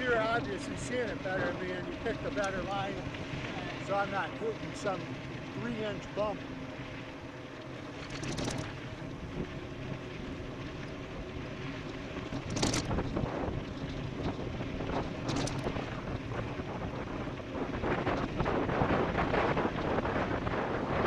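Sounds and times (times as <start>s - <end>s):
tyre and ride noise: 0.0s - 21.0s
wind rushing over microphone: 7.8s - 21.0s.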